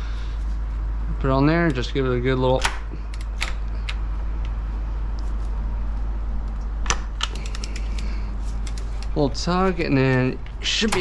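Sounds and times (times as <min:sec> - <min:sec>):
run of small ticks: 0:06.5 - 0:09.2.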